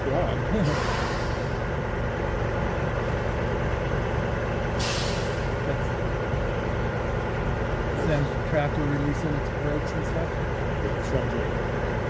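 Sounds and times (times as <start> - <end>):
truck engine rumble: 0.0 - 12.0
air brakes hissing: 0.6 - 1.7, 4.8 - 5.6.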